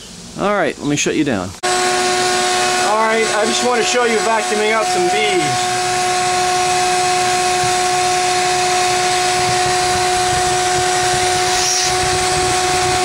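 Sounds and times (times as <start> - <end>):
vacuum motor whining: 1.6 - 13.0
rushing hiss of air: 5.5 - 13.0.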